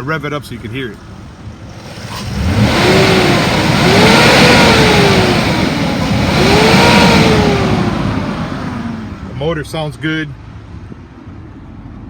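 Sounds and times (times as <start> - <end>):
truck engine revving: 1.6 - 9.4.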